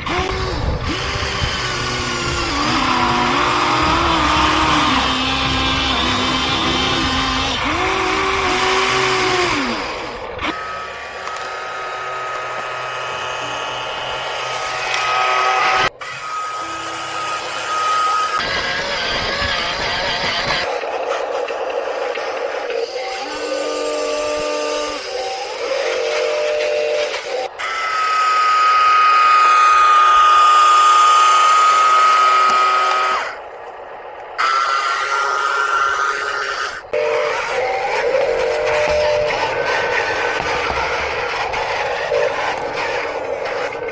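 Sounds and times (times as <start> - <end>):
small electric motors whining: 0.0 - 43.9
high-pitched whistle-like tone: 16.3 - 18.4, 23.0 - 27.5.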